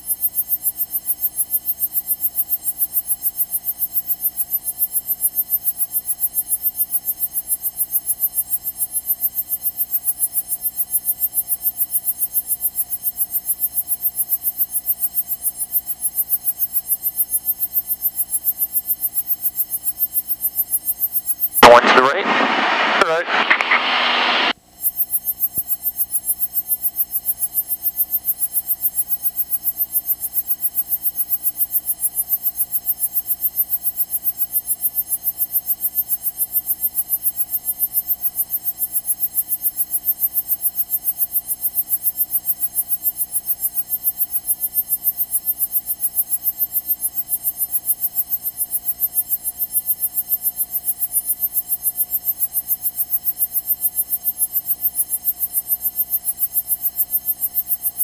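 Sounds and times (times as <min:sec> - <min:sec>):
electrical hum and buzz: 0:21.6 - 0:24.6.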